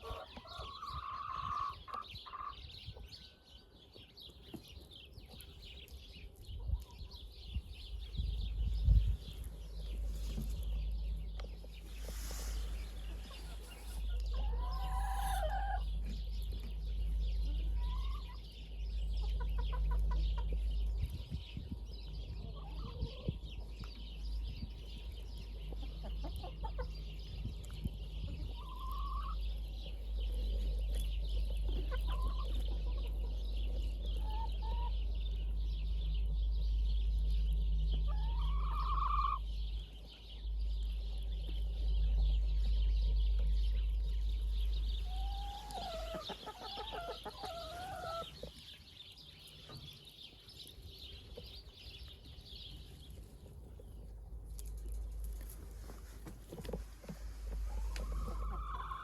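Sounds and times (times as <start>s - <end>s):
chicken squawk: 0.0s - 2.6s, 13.2s - 15.9s, 28.6s - 29.4s, 38.1s - 39.4s, 45.1s - 48.5s, 57.7s - 59.0s
chickens clucking: 0.0s - 3.2s, 8.2s - 35.8s, 37.3s - 41.9s, 42.6s - 52.5s, 53.1s - 59.0s
low rumble: 6.4s - 46.4s.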